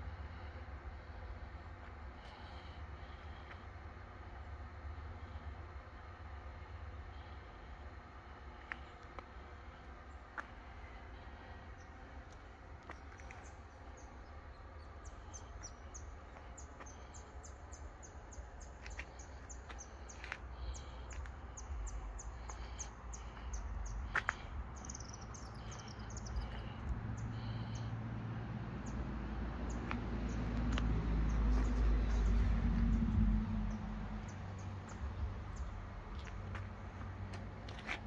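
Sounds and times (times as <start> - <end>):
small birds chirping: 8.6 - 27.9, 29.7 - 38.0
low rumble: 20.6 - 37.9.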